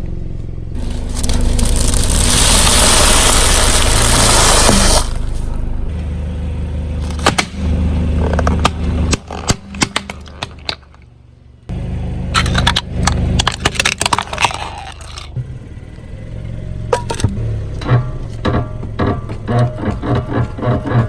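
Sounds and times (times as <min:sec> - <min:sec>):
car engine running low: 0:00.0 - 0:21.0
tyre crushing brittle objects: 0:00.8 - 0:05.6, 0:07.0 - 0:11.0, 0:12.4 - 0:15.4.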